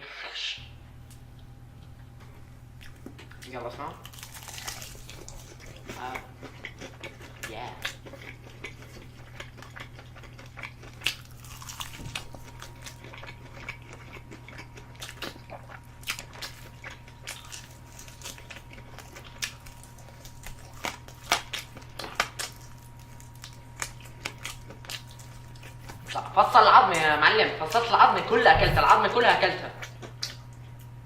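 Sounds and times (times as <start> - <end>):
steady low hum: 0.0 - 31.0
crunching and chewing: 1.1 - 28.9, 29.6 - 31.0.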